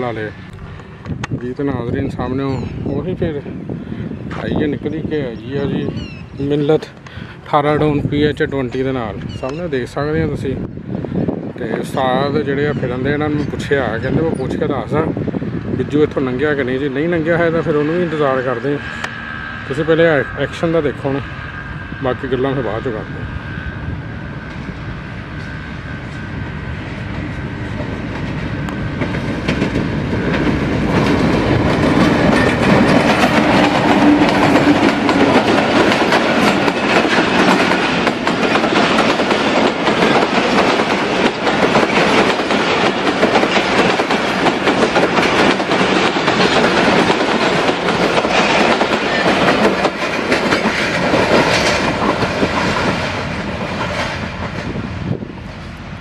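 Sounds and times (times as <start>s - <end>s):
locomotive engine hum: 16.6s - 56.0s
train wheels rattling over rail joints: 24.2s - 55.9s.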